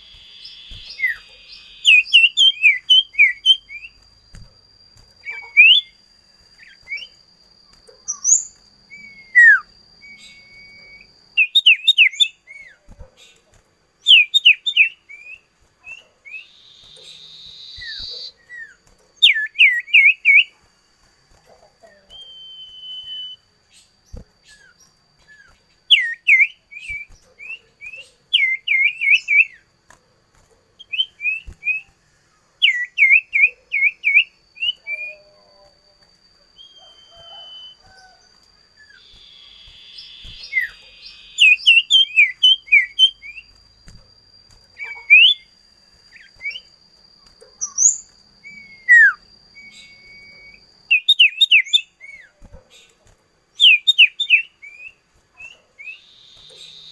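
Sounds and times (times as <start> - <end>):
bird chirping: 0.0 - 4.4, 5.2 - 7.2, 7.8 - 13.4, 14.0 - 20.5, 21.4 - 29.6, 36.6 - 38.2, 38.8 - 44.0, 44.8 - 45.5, 47.4 - 53.0, 53.6 - 56.9
faint high-pitched whine: 0.0 - 56.9.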